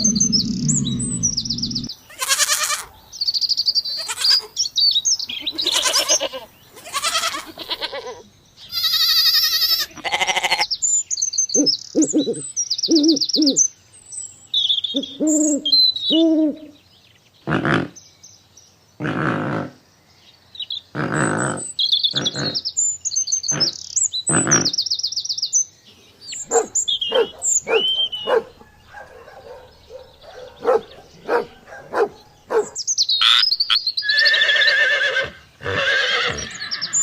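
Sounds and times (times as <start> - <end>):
animal calls: 0.0 - 3.1, 5.4 - 10.7, 21.0 - 22.7, 23.5 - 24.8, 26.3 - 37.0
bird chirping: 0.0 - 18.8, 20.0 - 37.0.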